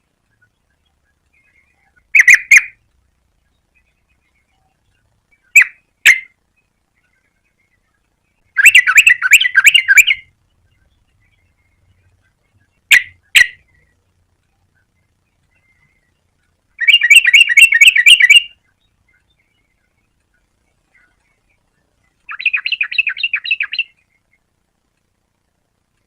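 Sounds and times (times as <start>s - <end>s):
bird chattering: 0.3s - 2.8s, 3.6s - 14.0s, 14.7s - 24.5s
bird calling bright notes: 8.6s - 10.3s, 16.8s - 18.6s, 22.3s - 24.0s.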